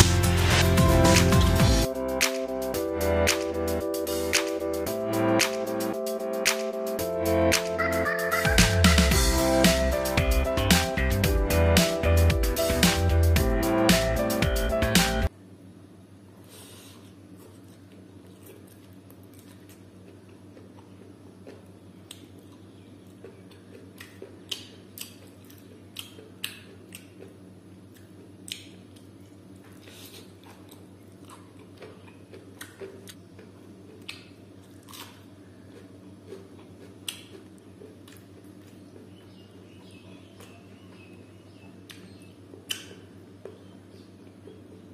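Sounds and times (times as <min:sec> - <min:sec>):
chewing and wet mouth smacks: 0:17.4 - 0:41.0, 0:41.8 - 0:43.6.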